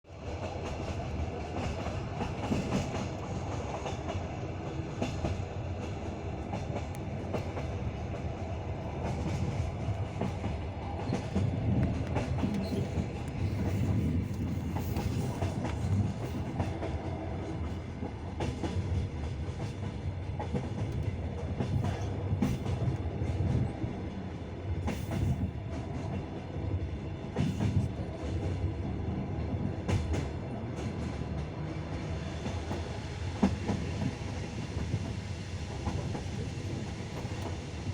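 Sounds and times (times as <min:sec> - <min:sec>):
train wheels rumbling: 0:00.1 - 0:37.9.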